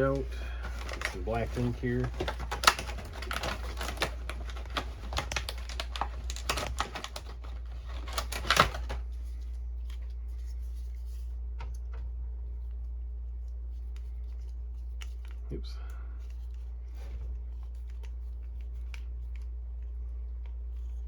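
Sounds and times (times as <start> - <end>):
steady low hum: 0.0 - 21.0
plastic clicks and rattles: 0.6 - 9.0.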